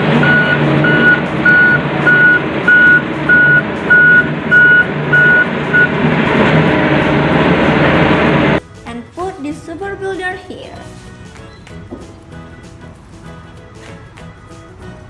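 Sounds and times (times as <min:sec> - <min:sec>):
truck engine rumble: 0:00.0 - 0:08.6
reversing alarm beeps: 0:00.1 - 0:06.0.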